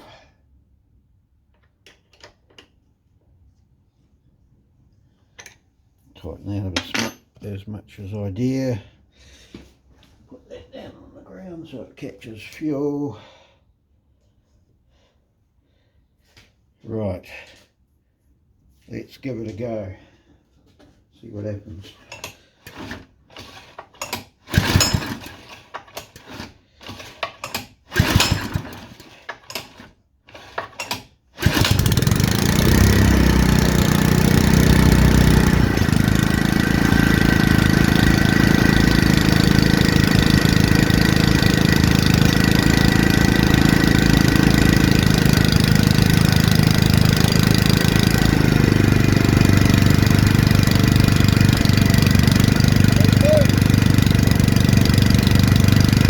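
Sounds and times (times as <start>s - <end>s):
recoil starter pulls: 21.9s - 56.0s
small engine running: 24.5s - 25.5s, 27.9s - 29.0s, 31.4s - 56.0s.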